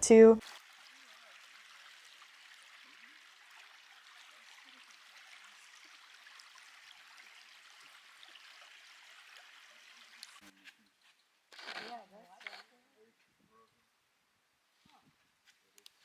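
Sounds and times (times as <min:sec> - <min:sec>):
faint rush of stream: 0:00.5 - 0:10.4.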